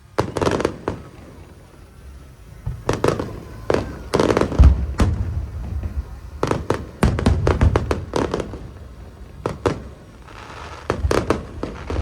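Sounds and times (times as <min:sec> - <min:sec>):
fireworks bangs: 0:00.0 - 0:12.0
deep heavy firework boom: 0:02.4 - 0:12.0.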